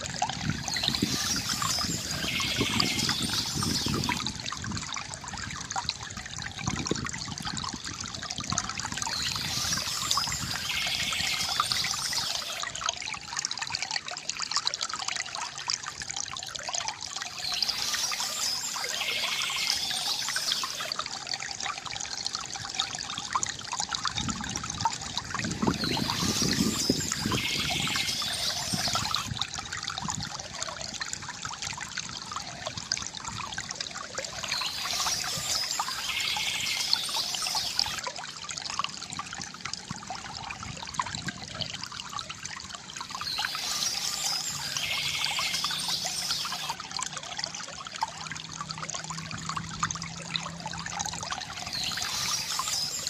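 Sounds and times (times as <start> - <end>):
river water gurgling: 0.0 - 53.0
birds chirping: 0.6 - 4.2, 9.0 - 12.6, 17.3 - 20.9, 25.6 - 29.3, 34.3 - 38.0, 43.0 - 46.8, 51.5 - 53.0.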